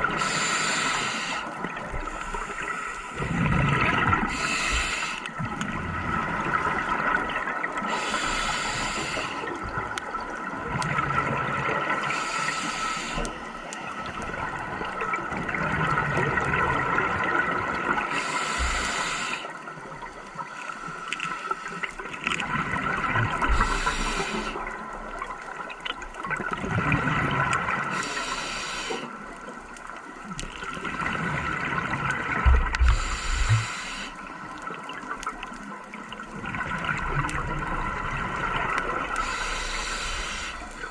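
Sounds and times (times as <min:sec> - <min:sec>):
exhaled bubbles gurgling: 0:00.0 - 0:20.5, 0:21.2 - 0:40.9
steady underwater hum: 0:00.0 - 0:40.9.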